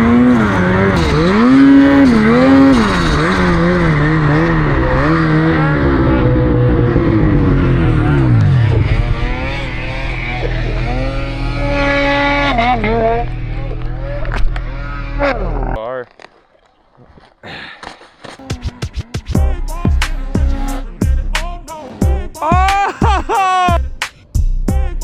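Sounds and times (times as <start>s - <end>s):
second steady engine: 0.0s - 15.7s
snowmobile engine revving: 0.0s - 15.8s, 18.4s - 23.8s.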